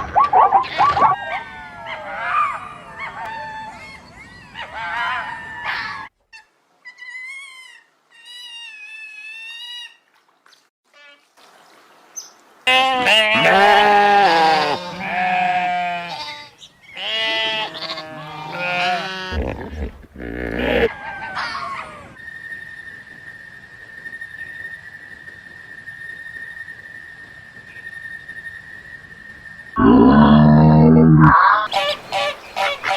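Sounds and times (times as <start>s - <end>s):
farm animal bleating: 12.7s - 20.9s, 29.8s - 31.7s
thin high animal calls: 17.0s - 22.2s, 29.8s - 32.9s.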